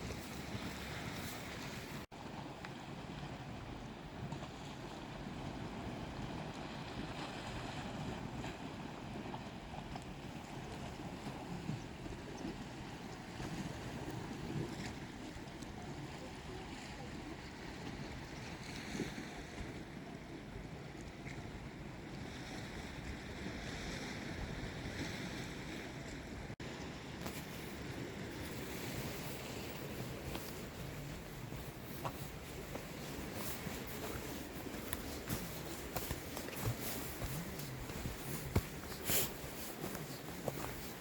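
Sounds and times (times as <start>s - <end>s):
waves washing against rocks: 27.2s - 41.0s.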